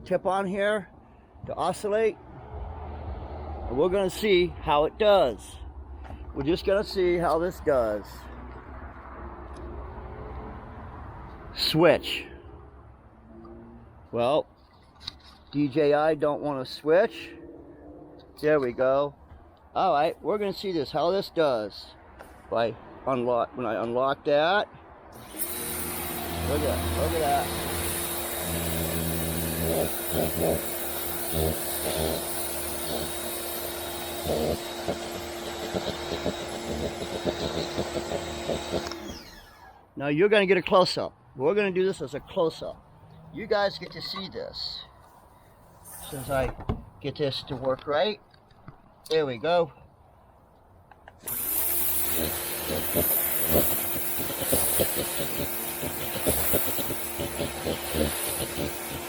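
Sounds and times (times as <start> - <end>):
water jet hissing: 25.2 - 38.9, 51.3 - 59.0
pressure washer humming: 25.2 - 39.6, 51.2 - 59.0
water spray hissing on wood: 51.4 - 59.0.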